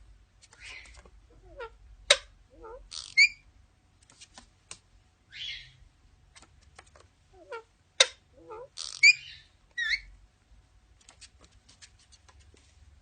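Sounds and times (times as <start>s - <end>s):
bird chirping and squawking: 0.5s - 3.4s, 5.3s - 5.8s, 7.4s - 10.1s.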